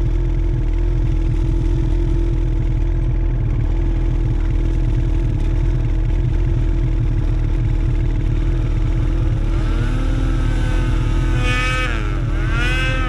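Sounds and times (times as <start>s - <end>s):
snowmobile engine revving: 8.3s - 13.0s.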